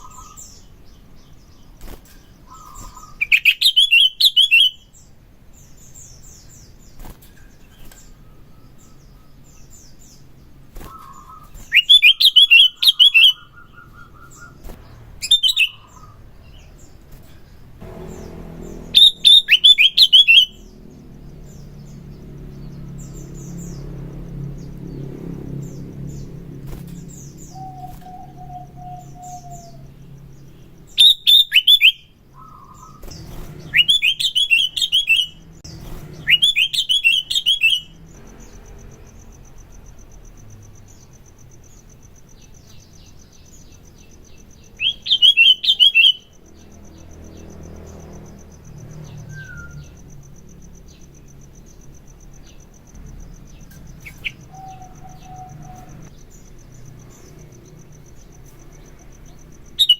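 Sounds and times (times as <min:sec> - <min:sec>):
bird chirping: 0:00.0 - 0:59.9
faint high buzz: 0:17.8 - 0:23.0.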